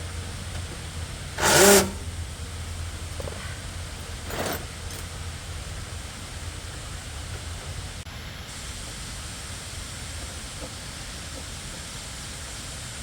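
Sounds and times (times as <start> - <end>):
low hum: 0.0 - 8.1
steady hiss: 0.0 - 13.0.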